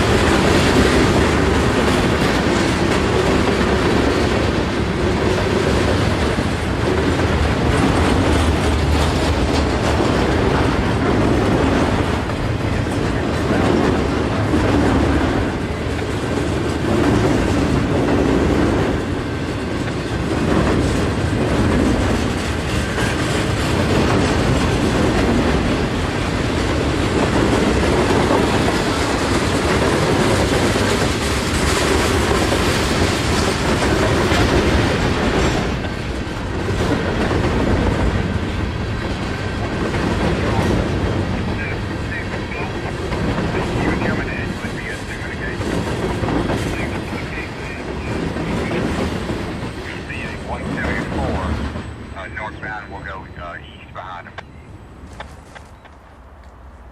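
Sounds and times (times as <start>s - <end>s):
wheels clacking over rail joints: 0.0s - 43.8s
freight train rumbling past: 0.0s - 56.9s.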